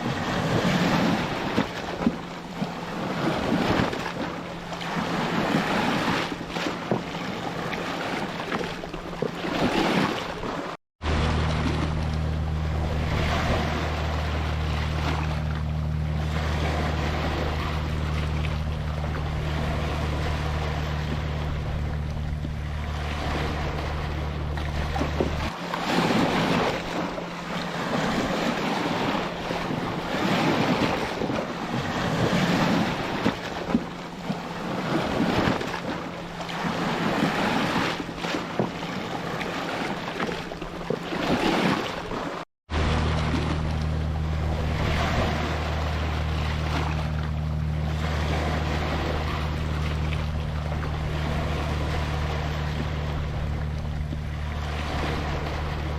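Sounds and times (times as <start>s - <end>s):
ocean surf washing in: 0.0s - 55.9s
steady low hum: 11.0s - 39.8s, 42.7s - 55.9s.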